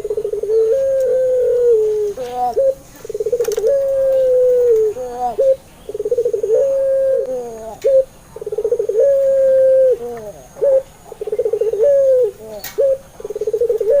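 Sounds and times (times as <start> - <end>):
dove cooing: 0.0 - 14.0.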